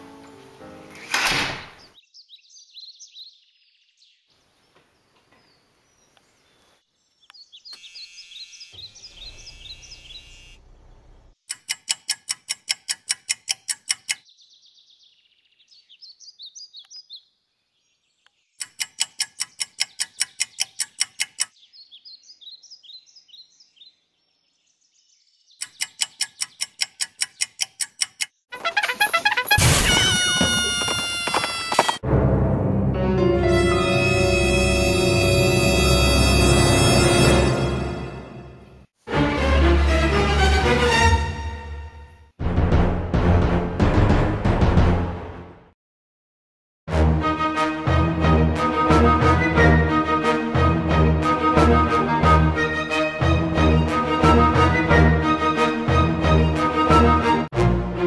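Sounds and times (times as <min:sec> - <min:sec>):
bird chirps and trills: 0:05.4 - 0:28.8.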